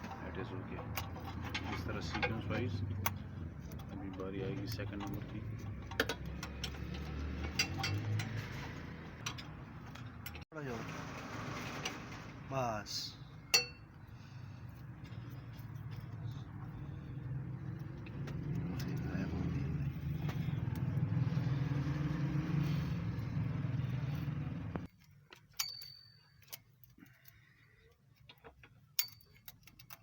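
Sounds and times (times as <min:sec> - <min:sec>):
hand tools clicking and tapping: 0:00.0 - 0:10.5, 0:24.8 - 0:30.0
engine humming: 0:13.2 - 0:24.9.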